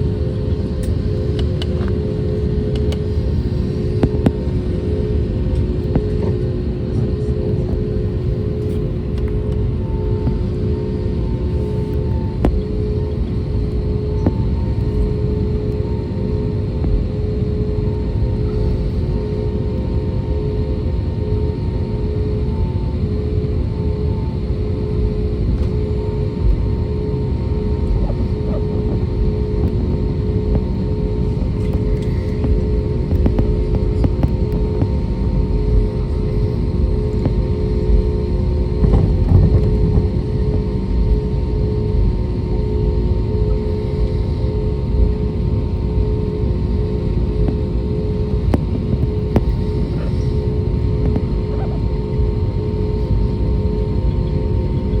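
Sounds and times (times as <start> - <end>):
jet engines running: 0.0 - 55.0.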